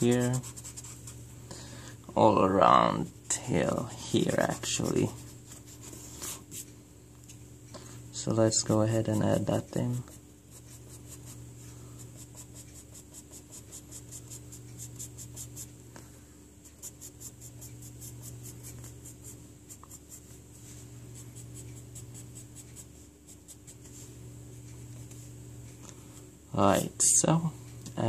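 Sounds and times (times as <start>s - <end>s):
pencil strokes scratching paper: 0.0s - 1.2s, 4.2s - 6.7s, 10.0s - 15.8s, 16.6s - 24.2s
steady low hum: 0.0s - 28.0s.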